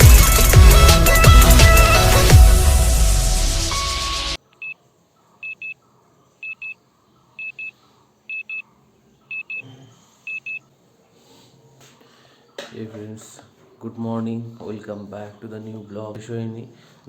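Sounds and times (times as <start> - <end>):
electronic music: 0.0 - 4.4
electronic alarm beeping: 5.4 - 5.8, 6.4 - 6.8, 7.4 - 7.7, 8.3 - 8.6, 9.3 - 9.7, 10.3 - 10.6.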